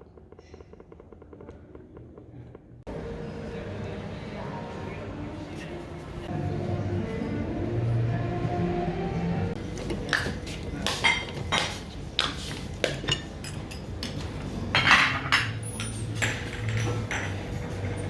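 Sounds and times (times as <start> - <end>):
dishes and cutlery clinking: 9.6 - 18.0.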